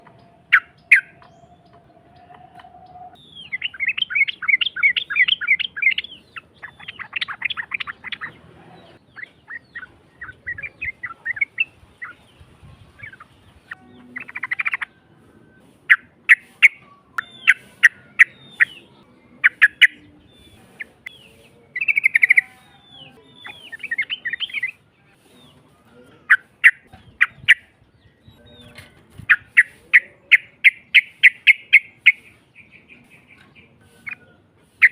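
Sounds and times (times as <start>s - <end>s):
bird harsh rapid chattering: 3.3s - 8.3s, 15.9s - 21.1s, 21.8s - 22.5s, 26.3s - 27.7s, 29.2s - 33.2s.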